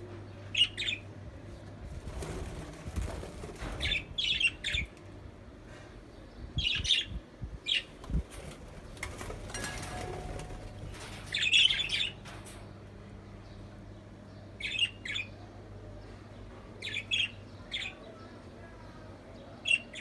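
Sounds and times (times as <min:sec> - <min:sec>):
steady low hum: 0:00.0 - 0:17.5
rustling: 0:01.8 - 0:04.4, 0:07.9 - 0:12.0.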